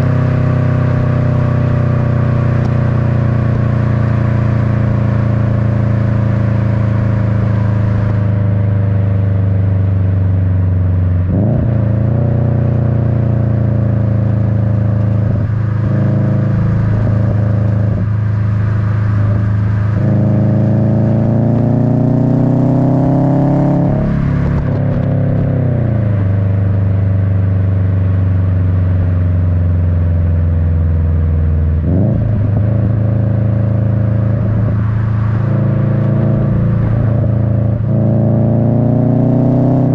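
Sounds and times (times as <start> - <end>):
car exhaust rumble while driving: 0.0 - 39.9.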